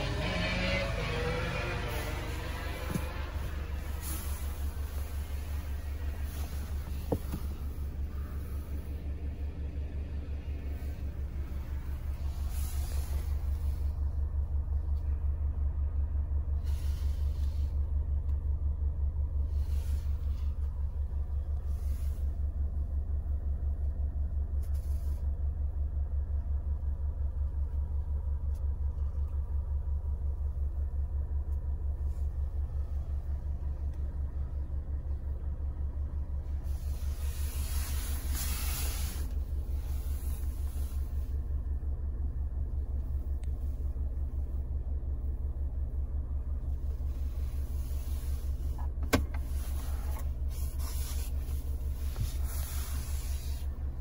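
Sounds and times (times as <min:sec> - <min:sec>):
diesel engine idling: 0:00.0 - 0:54.0
hissy rustles: 0:01.8 - 0:08.3, 0:36.6 - 0:41.4, 0:47.0 - 0:53.8.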